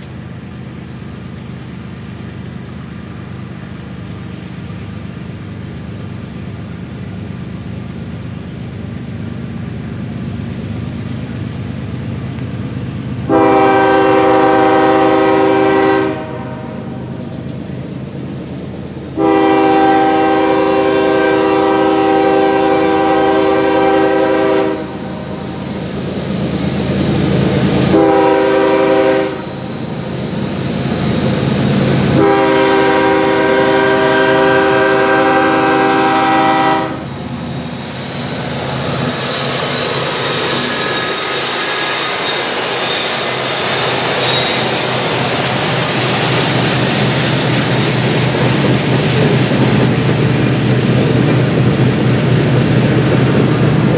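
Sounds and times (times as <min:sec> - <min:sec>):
train wheels rumbling on rails: 0:00.0 - 0:53.9
locomotive air horn blasts: 0:13.3 - 0:16.9, 0:19.2 - 0:25.4, 0:27.8 - 0:29.6, 0:32.1 - 0:37.2
faint wheel squeal: 0:29.3 - 0:31.6, 0:37.8 - 0:45.1.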